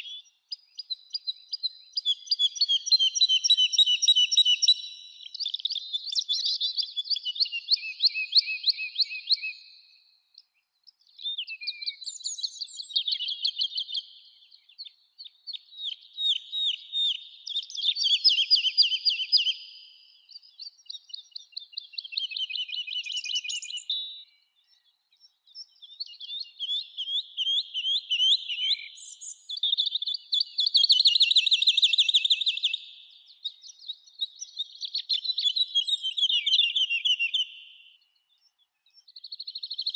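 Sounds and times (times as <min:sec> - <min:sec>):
songbird trilling: 0:21.2 - 0:24.1, 0:25.7 - 0:32.9, 0:34.3 - 0:37.8.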